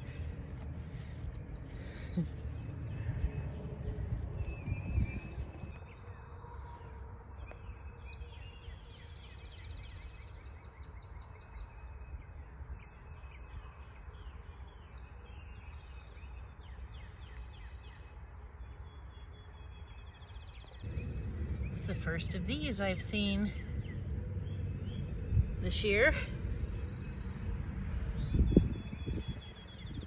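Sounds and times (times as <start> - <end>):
songbirds chirping: 0.0 - 30.0
low background rumble: 20.3 - 30.0.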